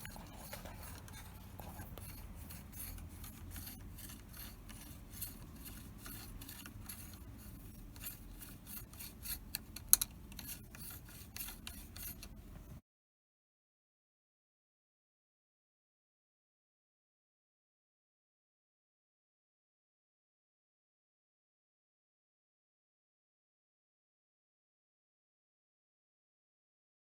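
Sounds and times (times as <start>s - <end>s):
small metal parts scraping and clicking: 0.0s - 12.8s.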